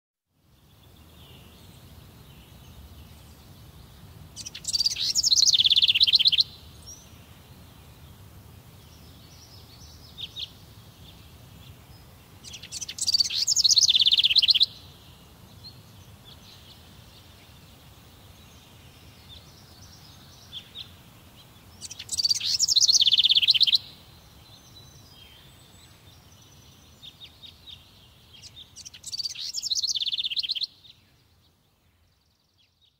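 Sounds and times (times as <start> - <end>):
songbird singing with trill: 0.4 - 32.9
bird chirps: 4.4 - 7.2, 8.8 - 21.0, 21.6 - 31.4.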